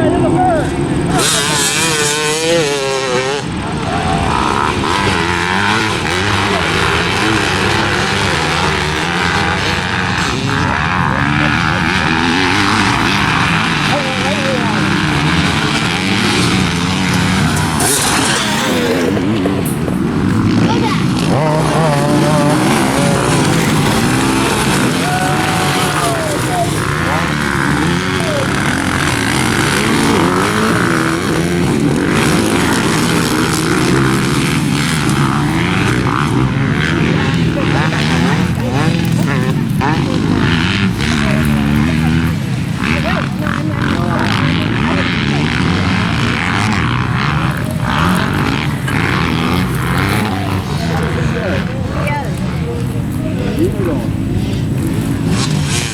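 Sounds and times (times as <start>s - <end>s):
dirt bike engine revving: 0.0s - 55.9s
steady rushing noise: 0.0s - 55.9s.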